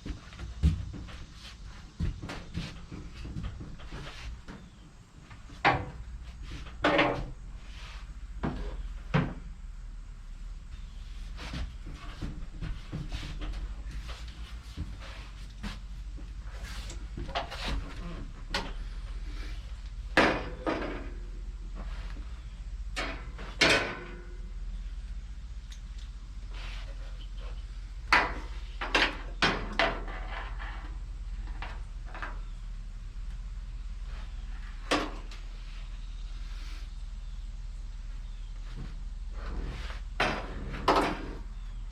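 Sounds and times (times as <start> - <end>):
steady low hum: 0.0 - 41.9
tools knocking and clunking: 5.4 - 7.4, 20.1 - 21.4, 22.9 - 24.4, 28.0 - 32.6.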